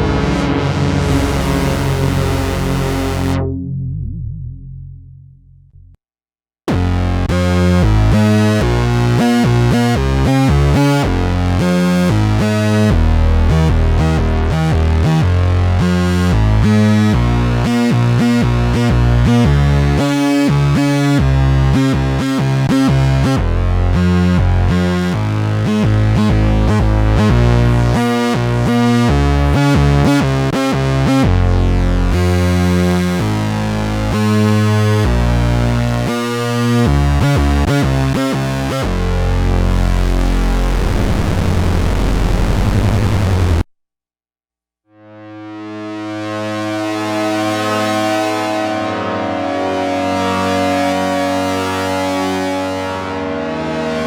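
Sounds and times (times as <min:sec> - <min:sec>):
analog synthesizer notes and chords: 0:00.0 - 0:05.8, 0:06.7 - 0:43.6, 0:45.4 - 0:54.0
deep synth bass: 0:00.0 - 0:06.0, 0:06.7 - 0:43.6.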